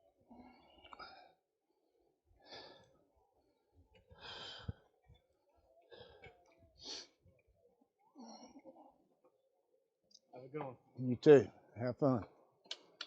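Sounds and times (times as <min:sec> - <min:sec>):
soft breathing: 0:02.4 - 0:07.4.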